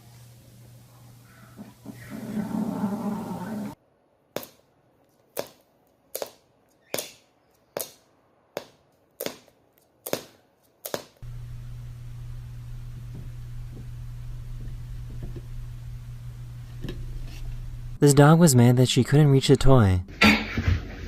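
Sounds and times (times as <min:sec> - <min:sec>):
steady low hum: 0:11.2 - 0:18.5.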